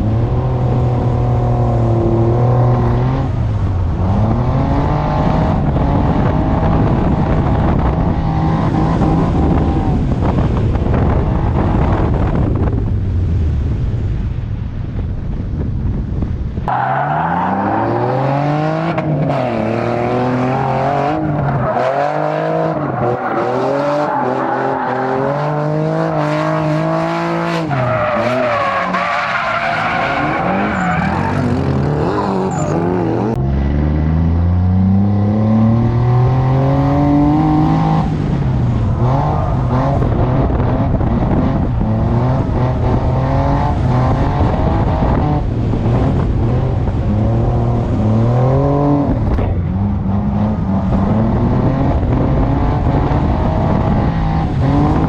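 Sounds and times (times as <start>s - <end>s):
car engine revving: 16.7s - 55.0s.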